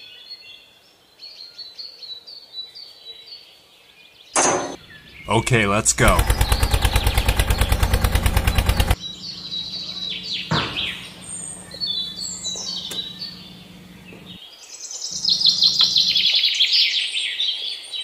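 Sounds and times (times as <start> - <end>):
songbirds chirping and singing: 0.0 - 18.0
fast mechanical rattle: 5.9 - 9.0.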